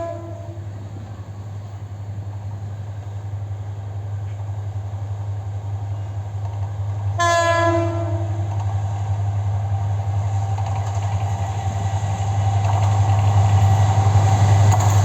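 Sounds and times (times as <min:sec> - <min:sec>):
locomotive horn blast: 0:00.0 - 0:00.7, 0:07.2 - 0:08.5
diesel locomotive humming: 0:00.0 - 0:15.0.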